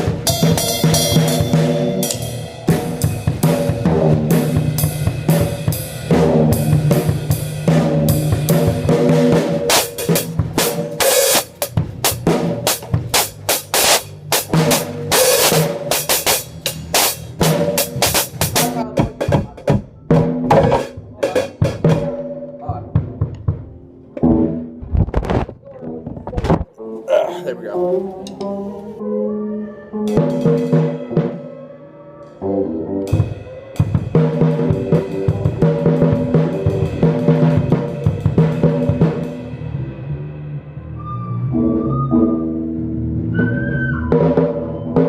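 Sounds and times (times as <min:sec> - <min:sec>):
rock drum kit playing: 0:00.0 - 0:26.7, 0:30.1 - 0:31.8, 0:32.4 - 0:41.0, 0:43.9 - 0:45.0
cymbal crashes: 0:00.2 - 0:18.8.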